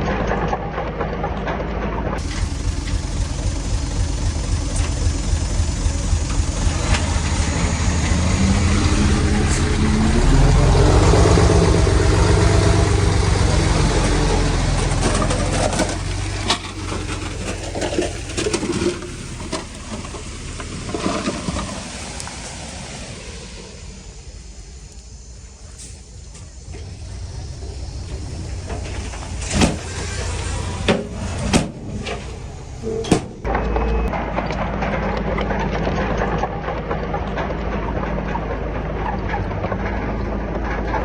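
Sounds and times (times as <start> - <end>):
diesel engine working under load: 0.0 - 41.0.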